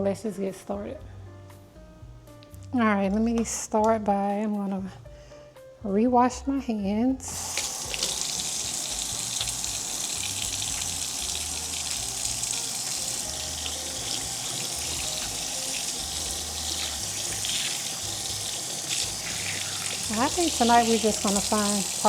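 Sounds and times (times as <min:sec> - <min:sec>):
faucet running into sink: 0:07.4 - 0:22.0
hands washing under water: 0:07.4 - 0:22.0.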